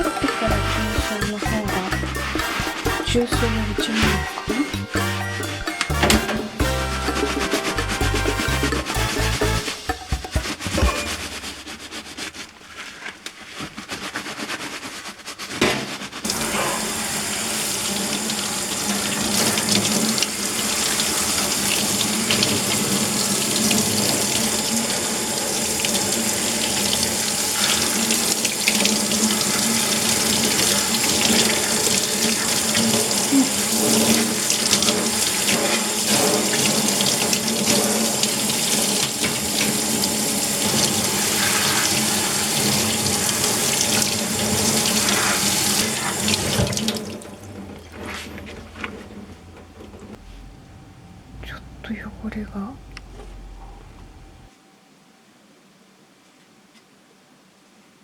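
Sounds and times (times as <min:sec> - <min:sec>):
tap water running into sink: 0:16.3 - 0:48.8.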